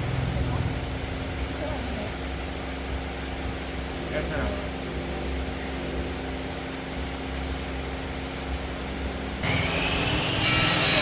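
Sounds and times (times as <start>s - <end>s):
motor humming: 8.9s - 11.0s
high-pitched whine: 9.4s - 11.0s.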